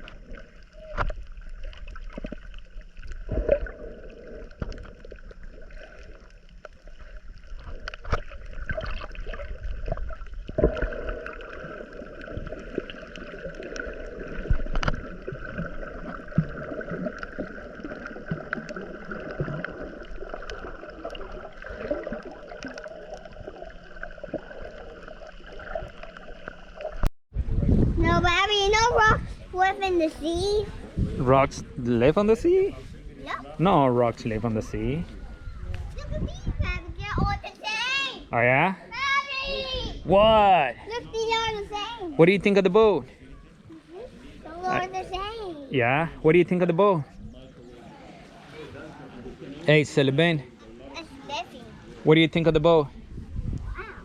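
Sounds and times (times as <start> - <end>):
water splashing around a boat: 0.0 - 27.0.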